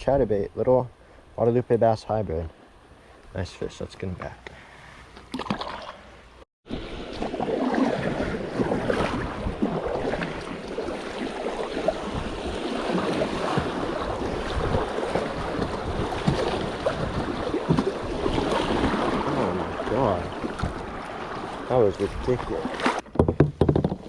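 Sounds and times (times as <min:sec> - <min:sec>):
river water rushing and splashing: 0:06.7 - 0:23.0
wind buffeting microphone: 0:07.8 - 0:19.3.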